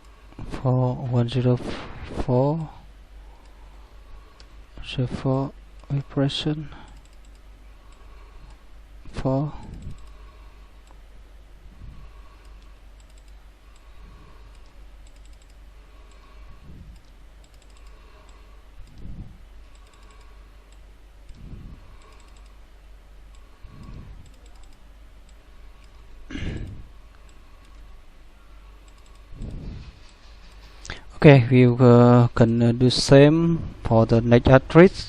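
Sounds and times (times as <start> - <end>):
steady low hum: 0.0 - 35.0
keyboard typing: 6.8 - 8.1, 9.6 - 10.2, 12.4 - 22.6, 23.3 - 26.0, 28.8 - 30.9.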